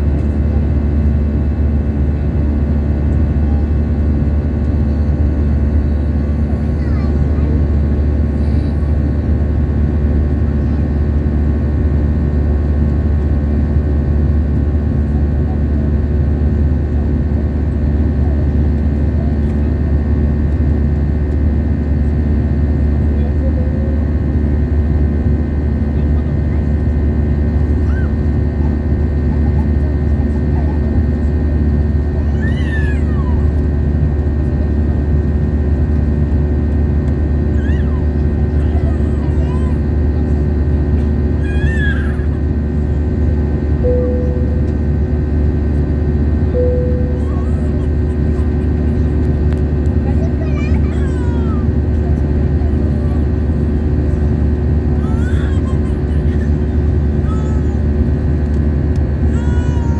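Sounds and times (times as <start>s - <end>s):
aircraft cabin engine drone: 0.0s - 59.9s
baby squealing: 41.4s - 42.4s, 47.1s - 47.9s, 55.0s - 57.8s, 59.3s - 59.9s.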